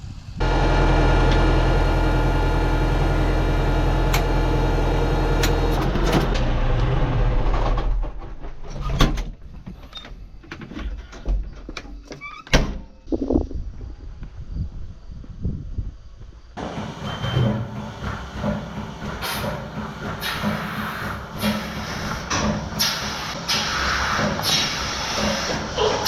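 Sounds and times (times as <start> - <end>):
machine motor running: 0.4 - 7.9.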